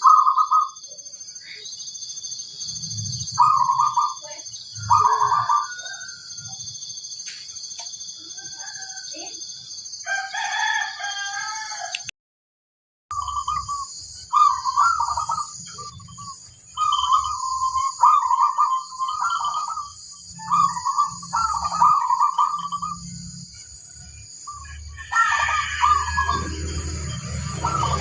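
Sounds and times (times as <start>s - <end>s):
dove cooing: 0.0s - 0.8s, 3.2s - 6.1s, 13.2s - 23.3s, 25.0s - 28.0s
steady high-pitched buzz: 25.8s - 28.0s.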